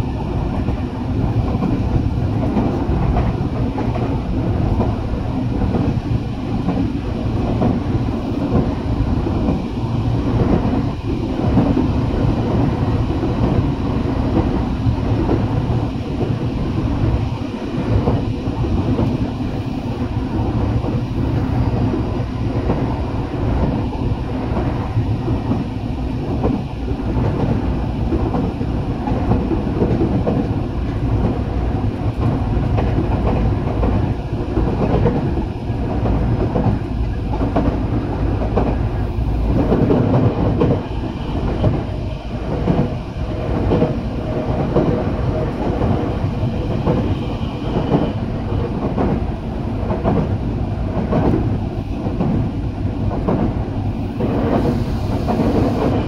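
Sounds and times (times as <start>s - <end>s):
train running rumble: 0.0s - 56.0s.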